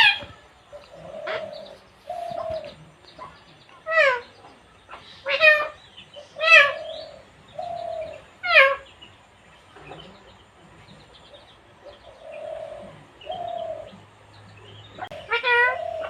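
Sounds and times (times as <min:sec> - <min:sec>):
parrot calls and chirps: 0:00.0 - 0:10.1, 0:11.2 - 0:16.0
parrot squawking: 0:05.2 - 0:07.1, 0:15.0 - 0:16.0.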